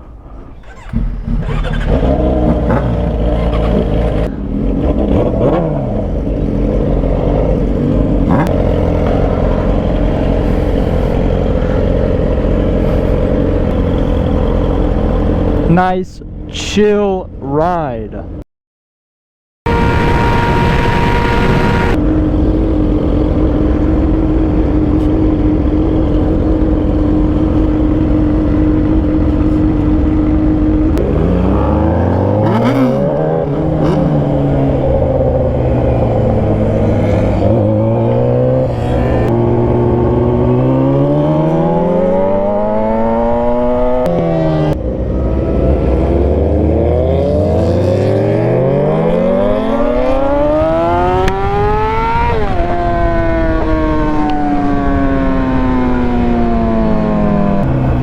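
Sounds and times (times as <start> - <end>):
motorcycle engine accelerating: 0.0 - 16.4, 19.7 - 58.0
wind rush: 19.7 - 24.9.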